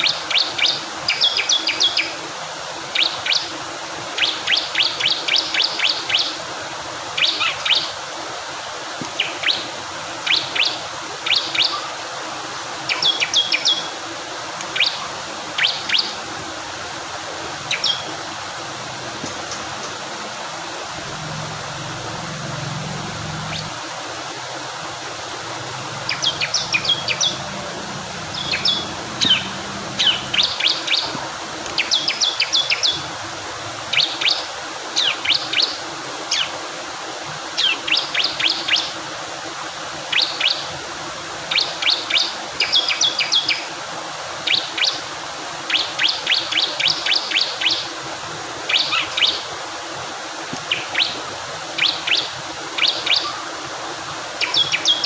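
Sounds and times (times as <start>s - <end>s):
rushing water: 0.0s - 55.0s
bird singing sharp chips: 28.3s - 31.1s.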